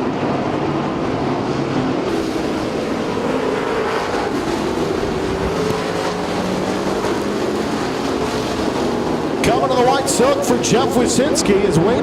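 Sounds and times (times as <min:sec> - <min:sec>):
race car engines roaring: 0:00.0 - 0:12.0.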